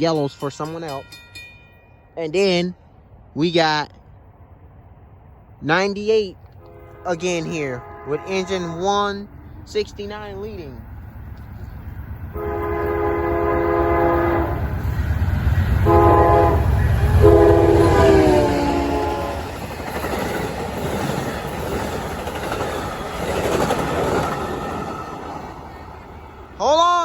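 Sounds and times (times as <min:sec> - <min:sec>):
passenger cars clattering: 0:00.0 - 0:02.4
locomotive rumbling past: 0:00.0 - 0:27.0
train horn blasts: 0:06.6 - 0:09.3, 0:12.3 - 0:14.8, 0:15.6 - 0:19.6.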